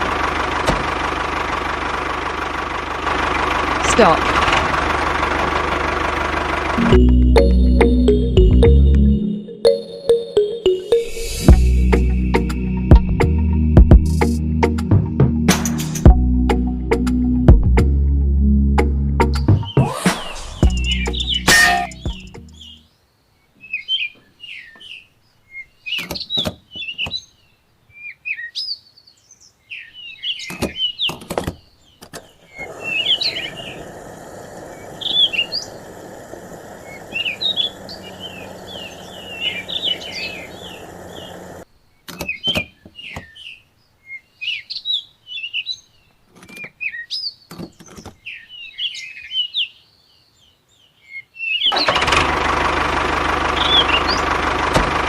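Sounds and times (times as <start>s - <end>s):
small birds chirping: 19.4s - 51.8s, 53.5s - 54.4s
steady rushing noise: 32.5s - 41.6s.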